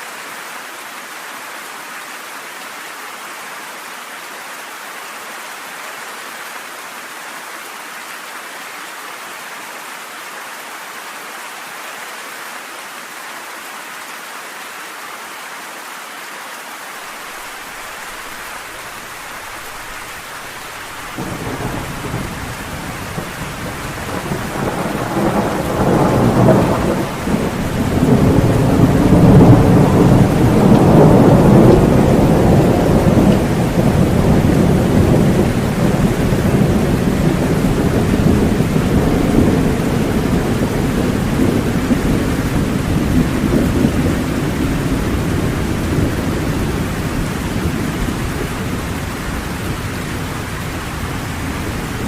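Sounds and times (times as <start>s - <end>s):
steady rain: 0.0s - 52.0s
thunder rumbling: 17.4s - 52.0s.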